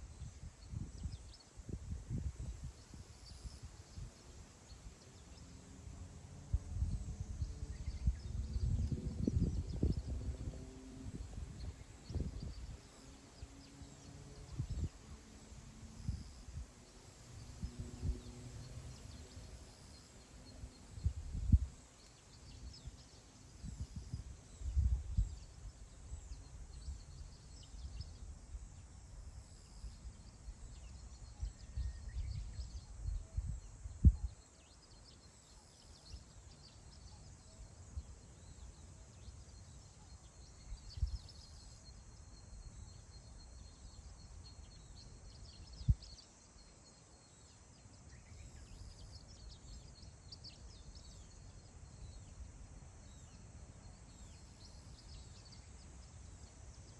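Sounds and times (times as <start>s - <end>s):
wind buffeting microphone: 0.1s - 4.2s, 6.5s - 13.1s, 20.6s - 21.8s, 23.6s - 28.1s, 31.4s - 34.4s
faint bird chirps: 6.8s - 56.9s.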